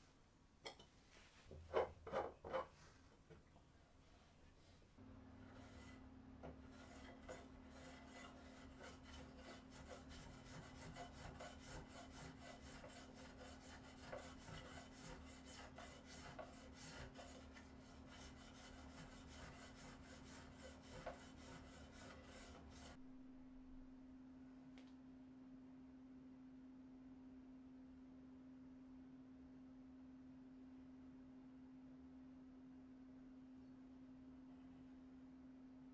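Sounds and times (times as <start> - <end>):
rapid filing strokes: 5.5 - 6.0, 6.6 - 23.0.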